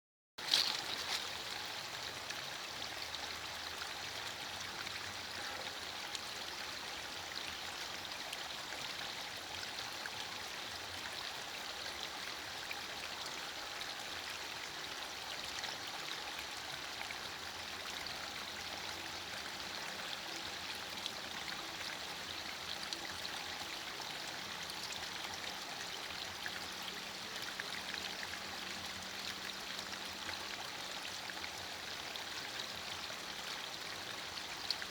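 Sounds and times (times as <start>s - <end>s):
light rain falling: 0.4s - 2.6s.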